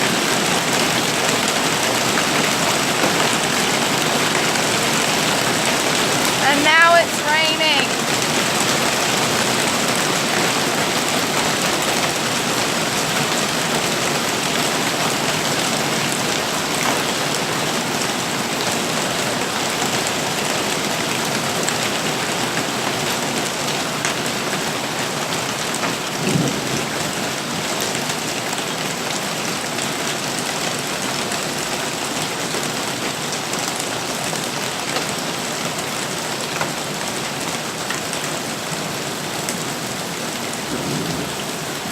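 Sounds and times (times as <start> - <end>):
heavy rain pelting: 0.0 - 41.9.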